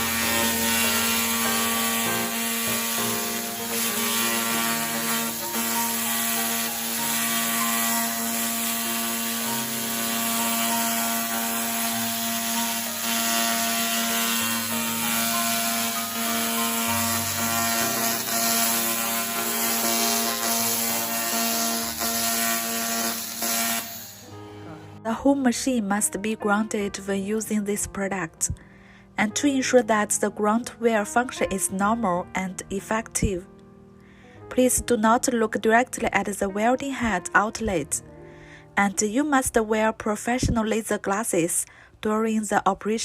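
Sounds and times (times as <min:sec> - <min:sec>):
laser cleaning hissing crackle: 0:09.6 - 0:24.3.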